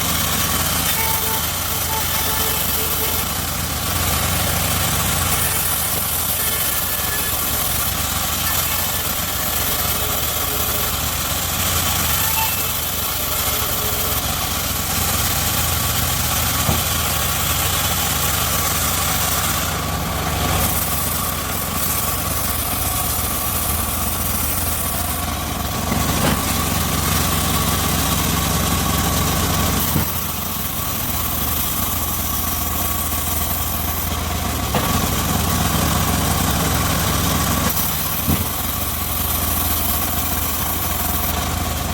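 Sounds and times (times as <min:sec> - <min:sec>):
circular sawmill blade whining: 0:00.0 - 0:41.9.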